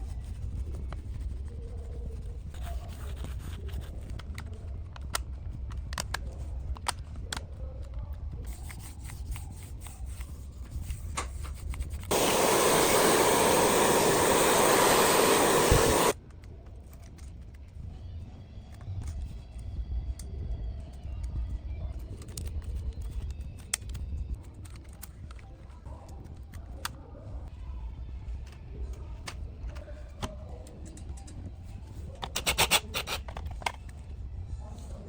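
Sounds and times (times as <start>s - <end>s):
spraying hiss: 12.1s - 16.2s.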